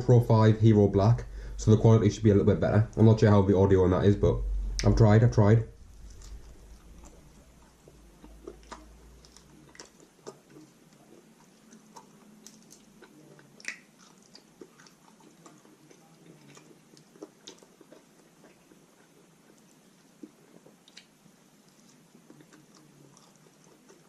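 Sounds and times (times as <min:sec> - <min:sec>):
person chewing food: 0:05.8 - 0:24.0.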